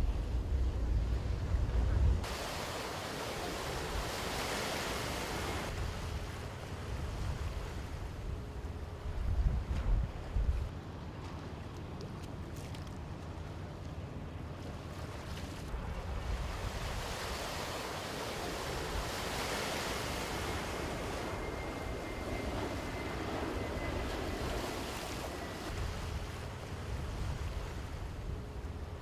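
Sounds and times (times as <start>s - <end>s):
low rumble: 0.0s - 2.2s
wind: 0.0s - 29.0s
rushing water: 2.2s - 7.1s.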